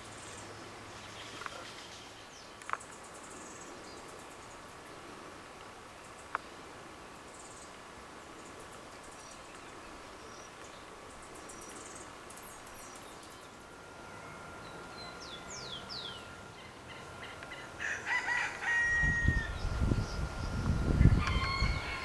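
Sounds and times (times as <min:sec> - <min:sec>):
small birds chirping: 0:07.2 - 0:17.9, 0:18.6 - 0:22.0
rooster crowing: 0:16.4 - 0:20.0, 0:20.9 - 0:22.0.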